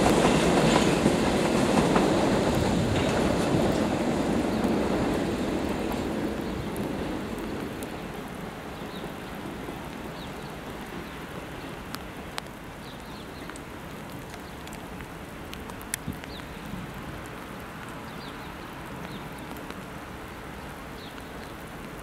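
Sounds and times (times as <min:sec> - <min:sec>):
electric train rumble: 0:00.0 - 0:09.8
rain-like background hiss: 0:00.0 - 0:22.0
faint clicks: 0:11.9 - 0:16.6.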